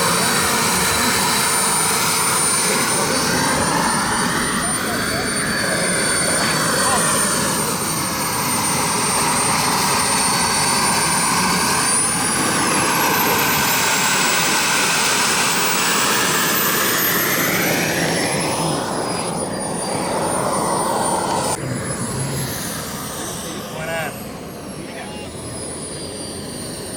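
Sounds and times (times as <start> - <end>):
model airplane engine whine: 0.0 - 26.9
steady rushing noise: 10.3 - 26.9.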